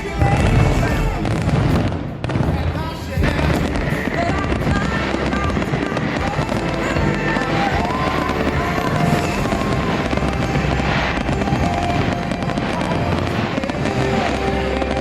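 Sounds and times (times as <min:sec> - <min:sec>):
fireworks bursting: 0:00.0 - 0:15.0
music over speakers: 0:00.0 - 0:15.0.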